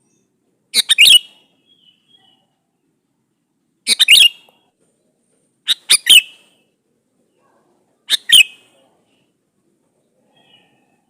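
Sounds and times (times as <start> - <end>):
bulbul calling: 0.8 - 2.4, 3.9 - 4.6, 5.7 - 6.4, 8.1 - 8.7.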